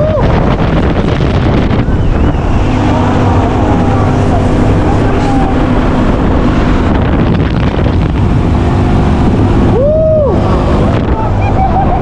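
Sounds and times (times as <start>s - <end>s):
low rumble: 0.0s - 12.0s
wind buffeting microphone: 0.0s - 12.0s
short rising and falling tone: 1.0s - 11.9s.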